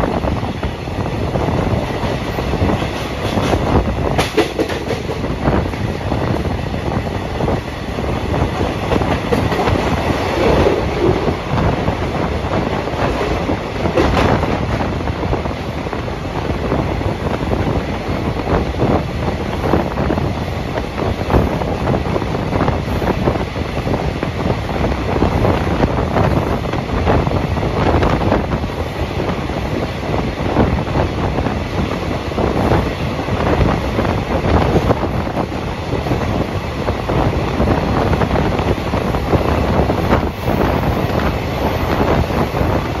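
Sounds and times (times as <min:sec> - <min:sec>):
train running noise: 0:00.0 - 0:43.0
wheels clicking over rail joints: 0:01.7 - 0:05.9.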